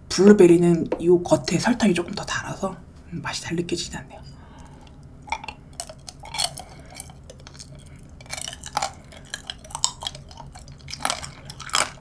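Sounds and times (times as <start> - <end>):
wet chewing of fruit: 4.5 - 12.0
candy shell crunching: 5.3 - 12.0.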